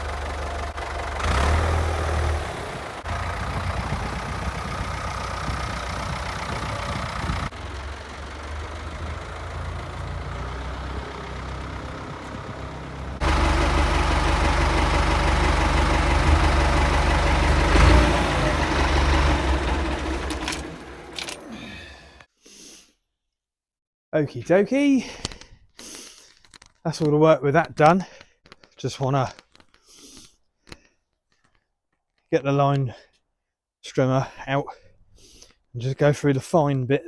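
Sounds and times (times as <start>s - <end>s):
tractor diesel engine running: 0.0s - 22.3s.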